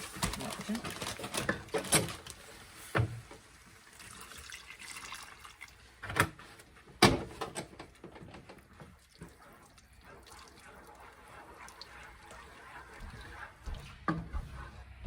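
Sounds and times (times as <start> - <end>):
water running from tap: 3.8 - 6.0.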